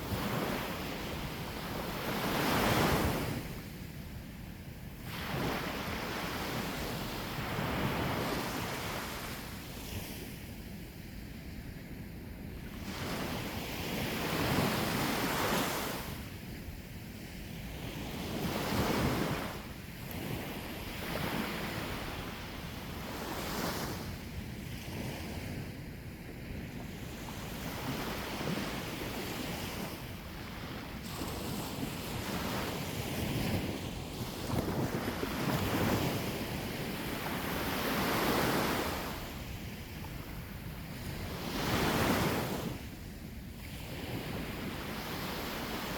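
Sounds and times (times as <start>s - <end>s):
sea waves breaking on shore: 0.0s - 3.8s, 5.0s - 10.4s, 17.4s - 25.8s, 26.8s - 45.9s
wind buffeting microphone: 16.9s - 45.9s.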